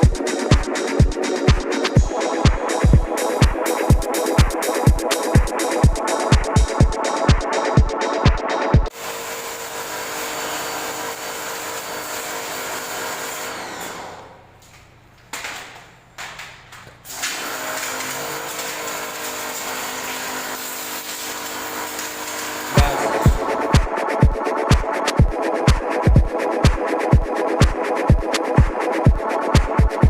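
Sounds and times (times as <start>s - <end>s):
small electric machine whining: 9.0s - 14.6s.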